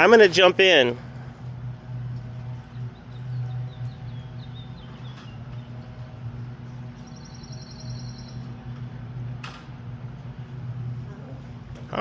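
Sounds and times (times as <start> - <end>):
steady low hum: 0.0 - 12.0
bird chirps: 2.0 - 9.4.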